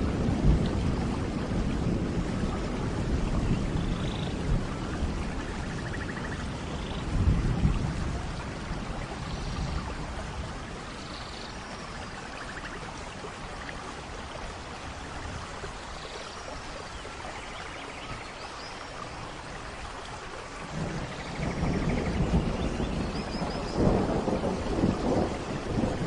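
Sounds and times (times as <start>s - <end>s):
low thunder rumbles: 0.0s - 13.2s, 20.6s - 26.0s
steady rain falling: 0.0s - 26.0s.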